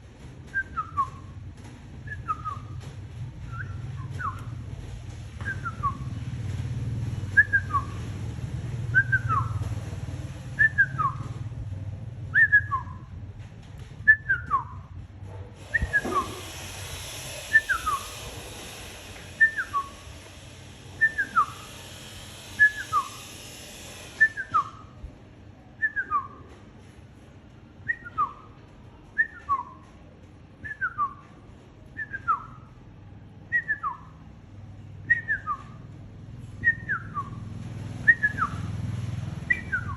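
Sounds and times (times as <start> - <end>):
hiss: 15.6 - 24.9.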